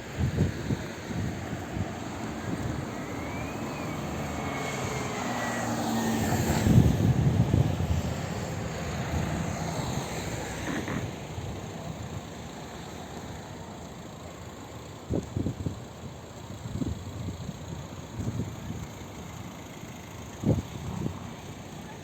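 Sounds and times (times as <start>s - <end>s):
engine passing by: 0.0s - 13.3s.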